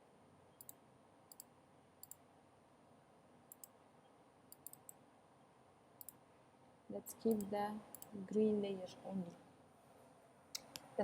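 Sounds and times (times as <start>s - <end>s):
faint computer mouse clicks: 0.6s - 2.2s, 3.5s - 3.8s, 4.5s - 5.0s, 6.0s - 6.2s, 7.3s - 8.2s.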